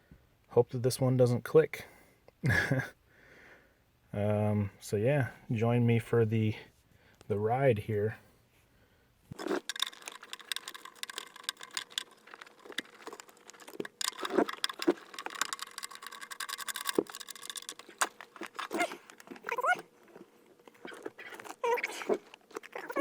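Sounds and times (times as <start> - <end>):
clicks taps and rustling: 9.3 - 23.0.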